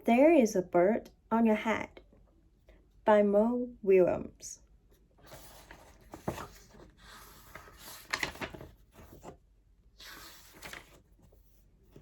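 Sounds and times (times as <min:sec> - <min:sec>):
book pages rustling: 0:05.2 - 0:12.0.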